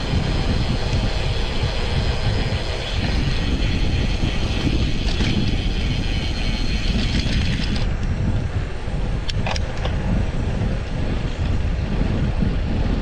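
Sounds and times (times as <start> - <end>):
bicycle hub ratcheting clicks: 0.0 - 8.3
wind rumbling on microphone: 0.0 - 13.0.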